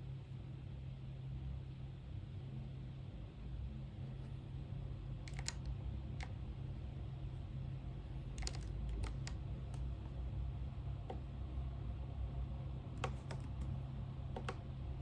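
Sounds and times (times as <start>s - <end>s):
computer keyboard keystrokes: 5.2s - 6.3s, 8.3s - 9.9s, 13.0s - 13.7s, 14.3s - 14.6s.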